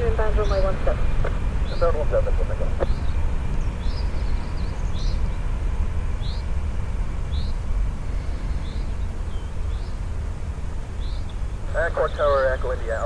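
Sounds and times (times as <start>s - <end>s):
loud low rumble: 0.0s - 13.0s
small bird chirping: 2.8s - 5.4s.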